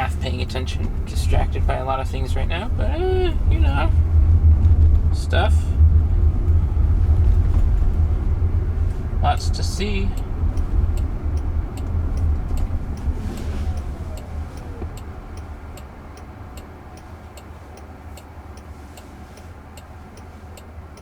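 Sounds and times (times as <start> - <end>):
low road rumble: 0.0 - 21.0
car turn signal ticking: 7.2 - 21.0.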